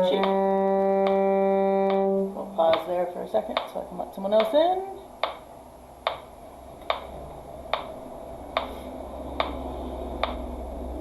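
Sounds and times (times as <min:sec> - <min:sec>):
metronome ticking: 0:00.0 - 0:05.4, 0:06.0 - 0:07.1, 0:07.7 - 0:08.8, 0:09.4 - 0:09.6, 0:10.2 - 0:10.4.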